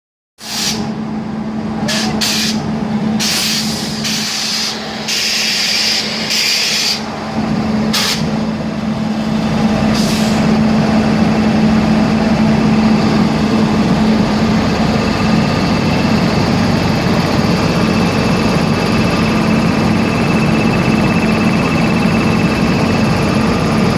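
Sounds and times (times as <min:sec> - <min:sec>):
short bursts of hiss: 0:00.4 - 0:00.9, 0:01.9 - 0:02.6, 0:03.2 - 0:07.0
steady engine hum: 0:00.4 - 0:23.9.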